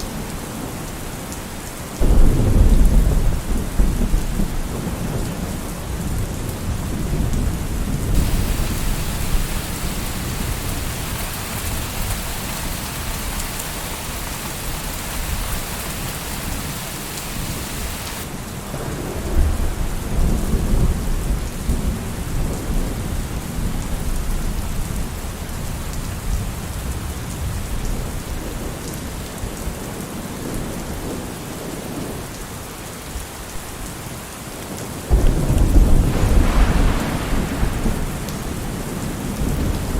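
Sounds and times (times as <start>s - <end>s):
steady rain falling: 0.0s - 39.9s
rolling thunder: 2.0s - 23.1s, 35.1s - 39.9s.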